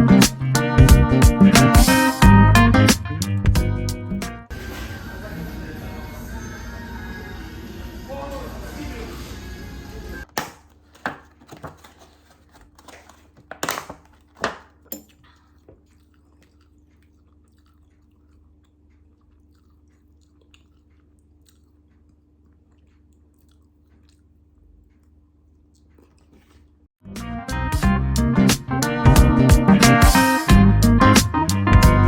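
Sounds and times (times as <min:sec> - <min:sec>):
chewing crunchy food: 0:14.1 - 0:26.9.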